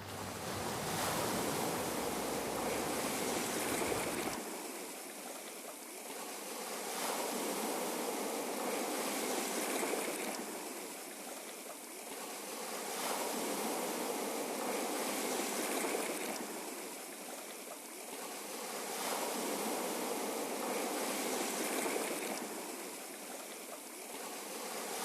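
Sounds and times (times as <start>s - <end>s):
ocean waves washing: 0.0s - 4.4s.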